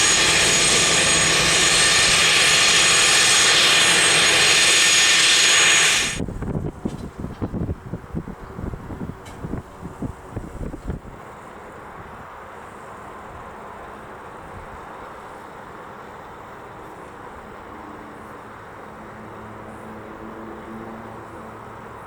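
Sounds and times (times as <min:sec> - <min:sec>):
low hum: 0:00.0 - 0:06.6
jet engines rushing: 0:00.0 - 0:11.1
wind thumps on microphone: 0:06.2 - 0:11.1.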